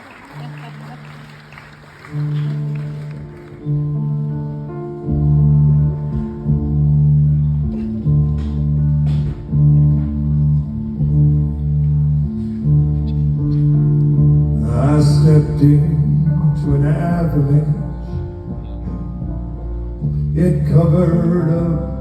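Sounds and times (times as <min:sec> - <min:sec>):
faint audience noise: 0:00.0 - 0:22.0
low electric bass line: 0:02.2 - 0:22.0.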